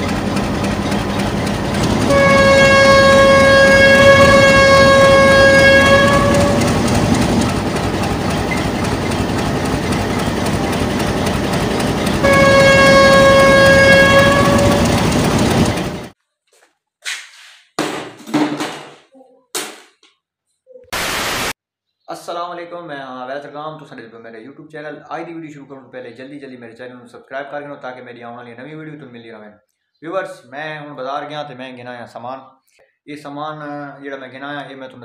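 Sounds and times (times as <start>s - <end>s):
train rumbling: 0.0s - 16.2s
train horn blasts: 1.9s - 7.2s, 12.0s - 16.1s.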